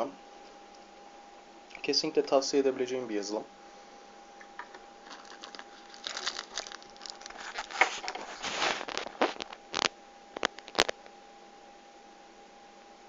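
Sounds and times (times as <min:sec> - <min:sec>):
plastic wrapper crinkling: 0:04.6 - 0:11.1.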